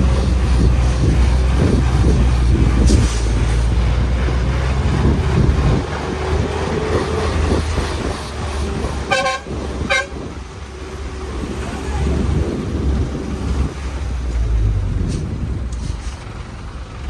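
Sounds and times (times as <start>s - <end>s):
bus engine and road rumble: 0.0s - 17.0s
vehicle horn toot: 9.0s - 10.3s.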